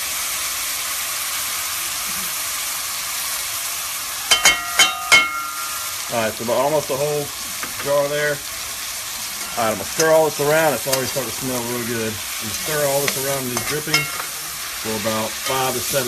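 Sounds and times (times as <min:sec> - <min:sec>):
vegetables sizzling in hot oil: 0:00.0 - 0:16.0
ringing clinks of glass or metal: 0:04.3 - 0:05.9.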